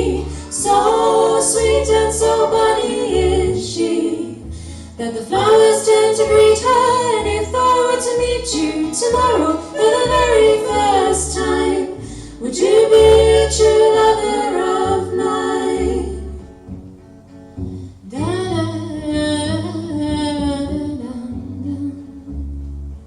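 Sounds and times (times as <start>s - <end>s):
low accompaniment: 0.0s - 23.0s
person singing: 5.1s - 16.2s.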